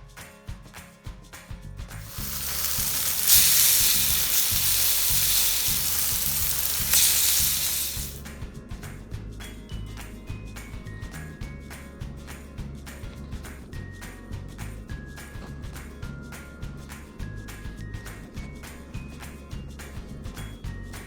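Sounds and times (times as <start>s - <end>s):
steak sizzling in a frying pan: 2.0s - 8.2s.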